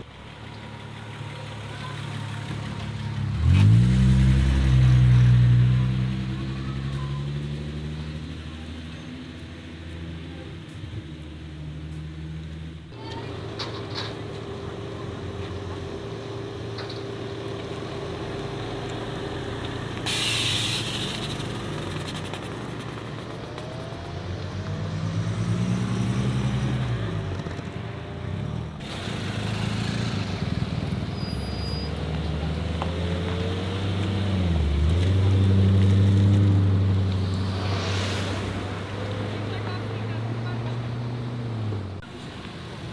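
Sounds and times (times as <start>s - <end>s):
car engines revving: 0.0s - 42.9s
short loud hiss: 20.0s - 21.6s.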